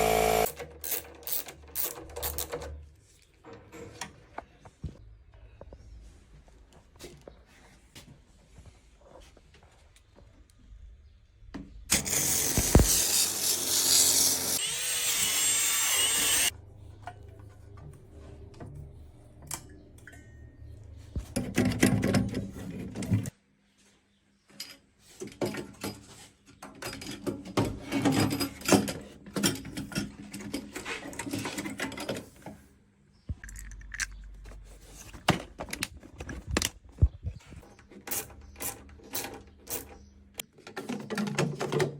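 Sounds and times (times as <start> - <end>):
loud steady machine noise: 0.0 - 0.5
tools clattering on metal: 24.6 - 32.4.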